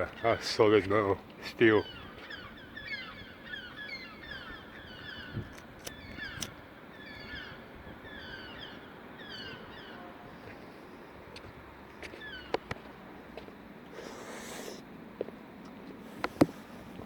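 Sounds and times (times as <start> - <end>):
birds chirping: 0.0 - 11.0, 12.0 - 12.9
sharp clicks: 5.5 - 6.6.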